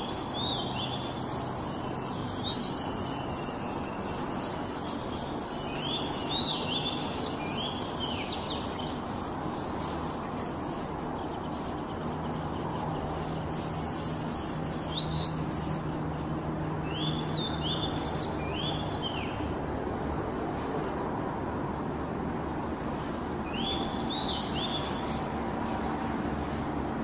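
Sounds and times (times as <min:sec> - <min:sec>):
steady background hiss: 0:00.0 - 0:27.0
bird singing quick rising notes: 0:23.5 - 0:25.5.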